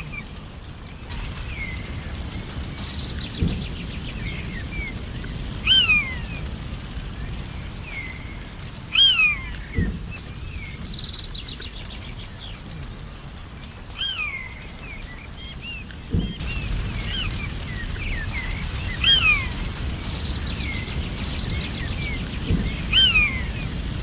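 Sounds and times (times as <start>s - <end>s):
steady low rumble: 0.0s - 24.0s
loud falling whistled bird call: 16.2s - 23.6s.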